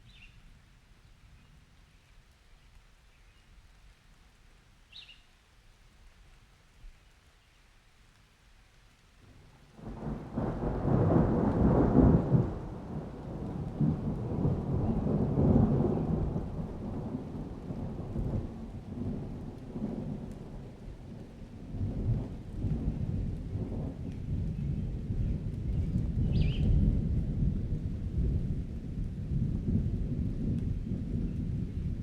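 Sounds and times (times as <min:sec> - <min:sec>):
rain: 0:00.0 - 0:32.0
thunder rumbling: 0:09.8 - 0:32.0.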